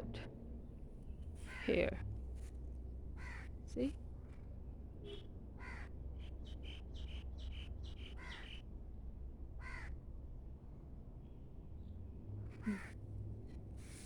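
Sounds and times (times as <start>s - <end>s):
birds calling: 5.1s - 8.6s.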